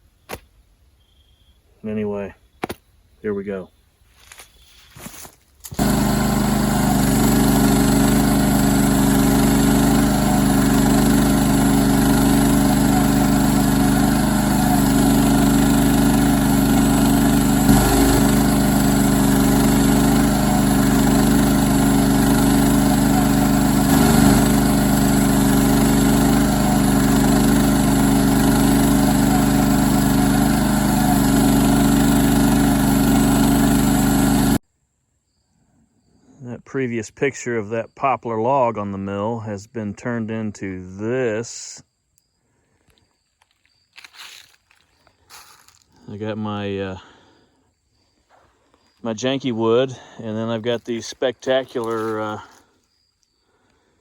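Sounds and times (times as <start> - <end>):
small gasoline engine running: 5.7 - 34.6, 44.1 - 45.9, 51.0 - 52.7.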